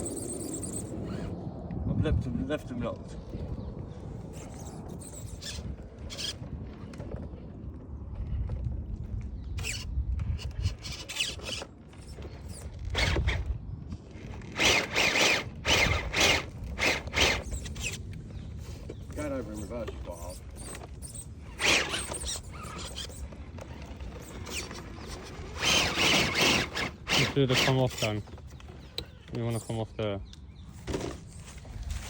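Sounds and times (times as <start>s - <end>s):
toy truck motor whirring: 0.0s - 1.3s, 4.3s - 6.5s, 9.6s - 13.6s, 14.2s - 29.8s.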